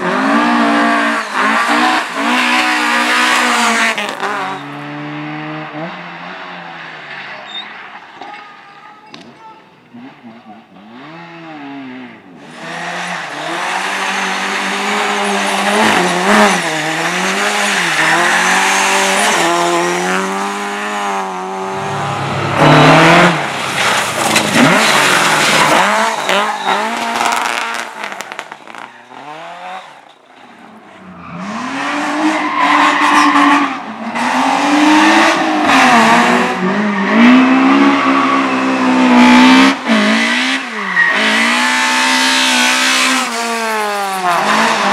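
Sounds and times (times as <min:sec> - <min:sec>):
car engine revving hard: 0:00.0 - 0:06.0, 0:10.0 - 0:30.0, 0:31.2 - 0:44.9
tyres squealing: 0:15.1 - 0:20.1, 0:23.9 - 0:27.9.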